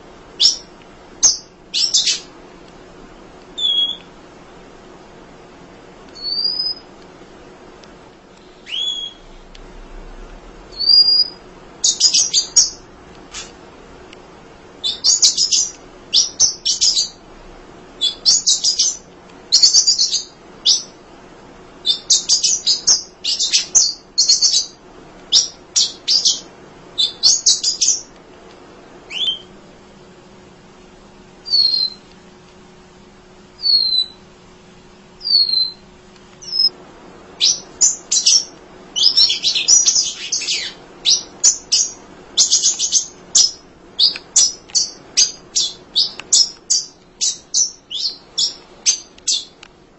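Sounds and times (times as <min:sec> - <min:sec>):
finches chirping: 0:00.4 - 0:02.3, 0:03.6 - 0:04.1, 0:06.2 - 0:06.9, 0:08.5 - 0:09.5, 0:10.7 - 0:12.8, 0:14.8 - 0:17.2, 0:18.0 - 0:21.0, 0:21.8 - 0:28.1, 0:29.1 - 0:29.5, 0:31.4 - 0:32.0, 0:33.6 - 0:34.2, 0:35.2 - 0:35.8, 0:36.4 - 0:36.7, 0:37.4 - 0:49.6.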